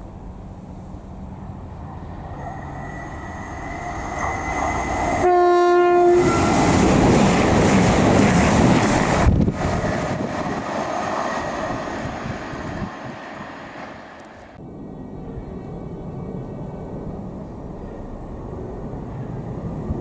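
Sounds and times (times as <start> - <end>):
train engine and wheel rush: 0.0 - 20.0
train horn blast: 4.4 - 6.7.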